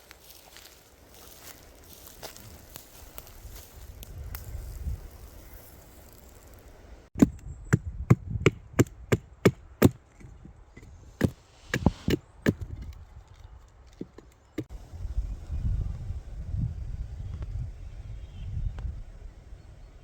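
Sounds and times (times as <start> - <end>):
wood being chopped: 7.2 - 10.3.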